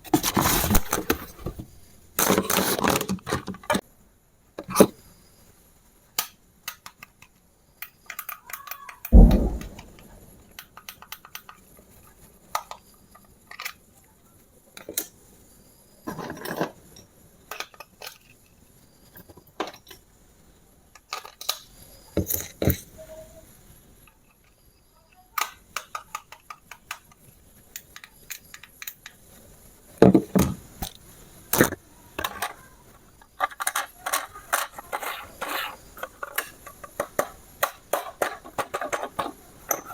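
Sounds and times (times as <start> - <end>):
plastic parts clicking and rattling: 0.0 - 3.8, 6.2 - 14.0, 16.1 - 20.0, 20.9 - 23.0, 24.0 - 29.4, 30.0 - 39.9
heavy thump: 9.2 - 10.3.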